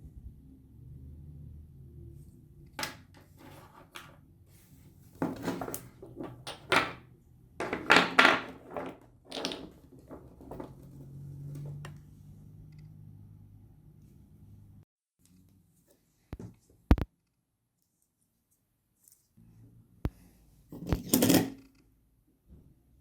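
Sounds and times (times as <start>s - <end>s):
objects knocking on workbench: 5.2s - 7.0s, 7.6s - 10.9s.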